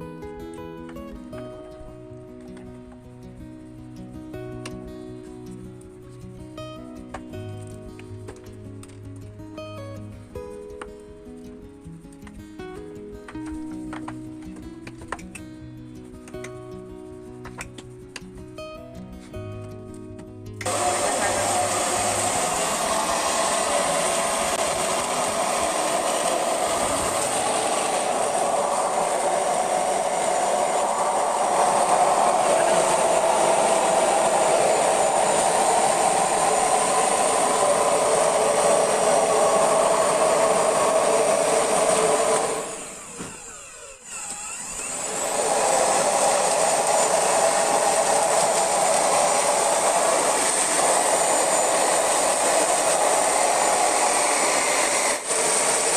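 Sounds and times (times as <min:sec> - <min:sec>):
cleaning machine motor whining: 0:20.6 - 0:55.9.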